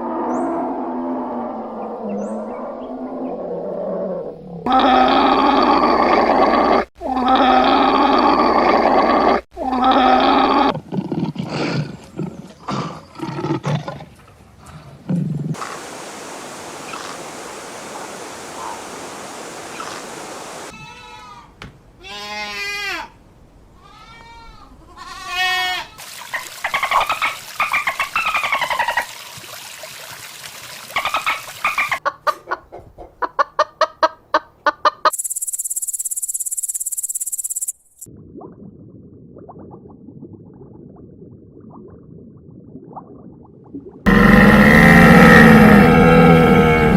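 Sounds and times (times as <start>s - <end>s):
falling chirped calls: 15.6s - 20.7s
fast rattle of ticks: 35.1s - 38.1s
low grunting pulses: 44.1s - 46.9s.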